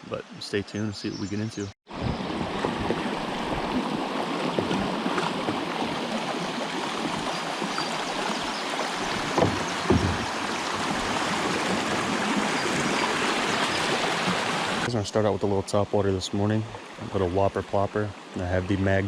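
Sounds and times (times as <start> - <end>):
river water flowing: 1.9 - 19.0
knocks: 9.2 - 11.1.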